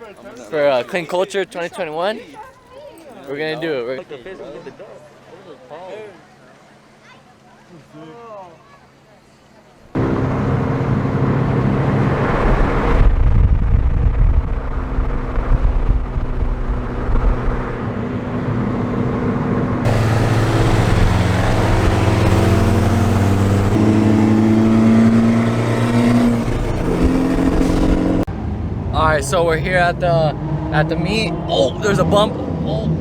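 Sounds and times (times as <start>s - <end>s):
car engine running: 10.0s - 33.0s.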